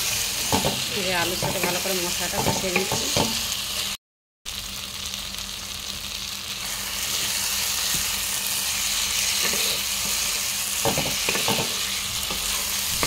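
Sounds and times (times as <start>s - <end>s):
potatoes sizzling in oil: 0.0s - 13.0s
spatula scraping pan: 8.8s - 13.0s.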